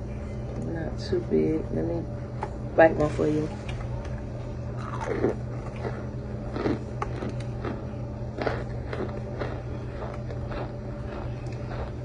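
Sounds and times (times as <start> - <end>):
cornstarch crunching as chewed: 4.8 - 12.0.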